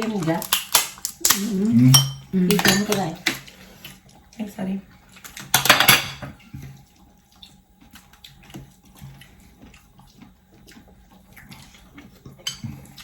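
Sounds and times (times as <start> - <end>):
wet sucking and chewing: 3.2 - 5.5, 6.4 - 13.0.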